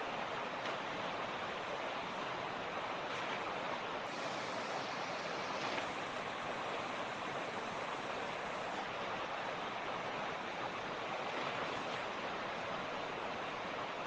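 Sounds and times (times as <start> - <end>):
creek water babbling over stones: 0.0 - 14.0.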